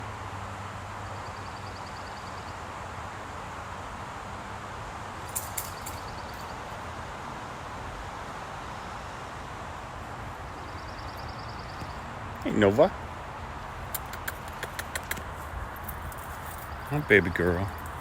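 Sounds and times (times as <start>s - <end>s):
outdoor background noise: 0.0s - 18.0s
sharp clicks: 13.9s - 16.2s.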